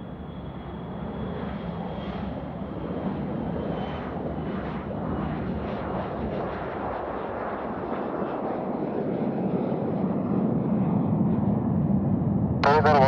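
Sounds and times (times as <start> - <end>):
airliner engines roaring: 0.0 - 13.0
high engine whine: 12.6 - 13.0.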